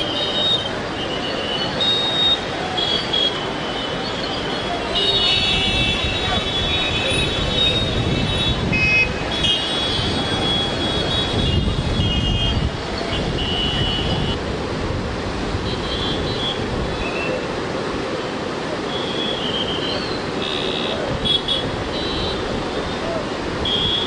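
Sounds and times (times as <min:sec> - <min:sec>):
river rushing: 0:00.0 - 0:24.0
wind on microphone: 0:05.1 - 0:17.8.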